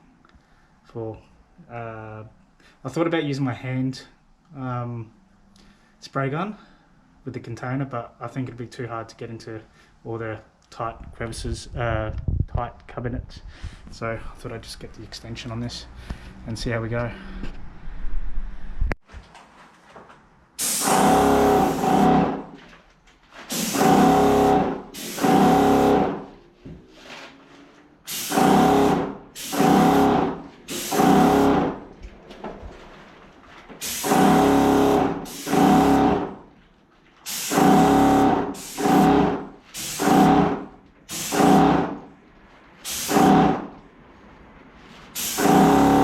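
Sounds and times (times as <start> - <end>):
hiss of paint spray: 20.6 - 21.8, 23.5 - 24.2, 24.9 - 25.6, 28.1 - 31.5, 33.8 - 34.4, 35.2 - 36.0, 37.2 - 40.3, 41.1 - 41.7, 42.8 - 43.4, 45.1 - 45.7
motor pump buzz: 20.6 - 22.5, 23.5 - 26.3, 28.1 - 31.8, 33.8 - 36.4, 37.3 - 42.0, 42.9 - 43.7, 45.2 - 46.0.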